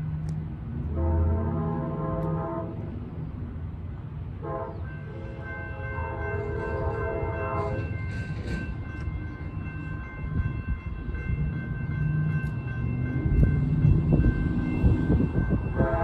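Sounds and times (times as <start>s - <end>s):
approaching train rumble: 0.0s - 16.0s
train horn: 0.8s - 2.9s, 4.4s - 7.9s, 15.6s - 16.0s.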